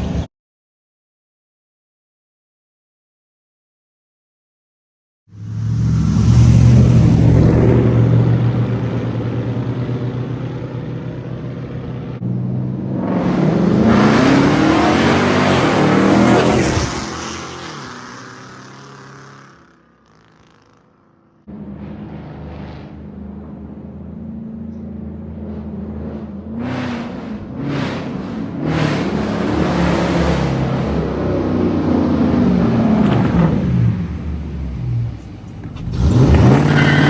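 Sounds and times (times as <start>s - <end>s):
car engine accelerating hard: 5.3s - 37.0s
engine revving: 5.3s - 37.0s
car engine idling: 5.4s - 12.8s, 33.8s - 36.2s.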